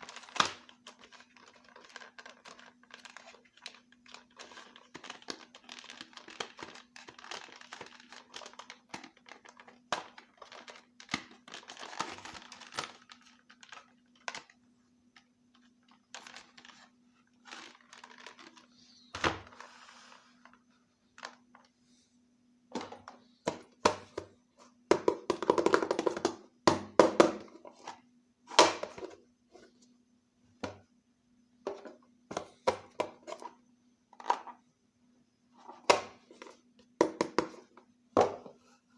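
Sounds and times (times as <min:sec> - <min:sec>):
packaging crinkling: 0:00.0 - 0:14.6, 0:15.5 - 0:18.9
faint steady hum: 0:00.0 - 0:38.9.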